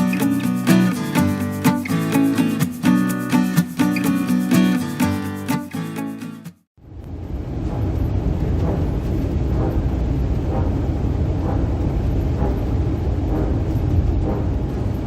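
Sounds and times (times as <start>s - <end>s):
guitar music: 0.0s - 6.7s
wind rumble on microphone: 6.8s - 15.0s.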